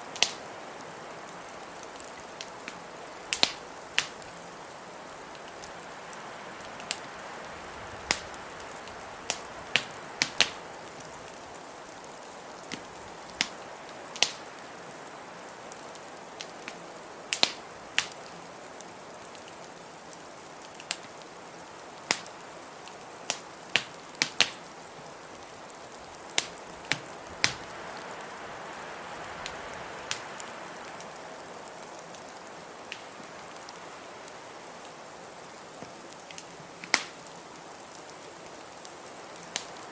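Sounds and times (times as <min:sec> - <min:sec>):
blizzard wind hissing: 0:00.0 - 0:16.2, 0:24.0 - 0:35.4
wood fire crackling and popping: 0:00.0 - 0:39.9.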